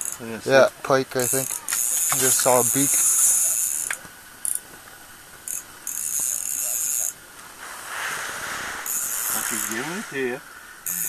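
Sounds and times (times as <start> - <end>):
fishing reel buzzing: 0.0 - 0.3, 1.1 - 4.6, 5.4 - 7.2, 8.8 - 10.1
hiss: 6.1 - 11.0.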